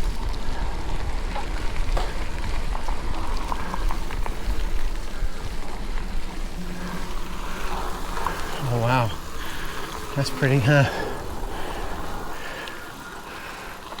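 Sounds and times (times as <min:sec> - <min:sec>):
wind rumble on microphone: 0:00.0 - 0:10.2
tyre and raindrop crackles: 0:00.0 - 0:14.0.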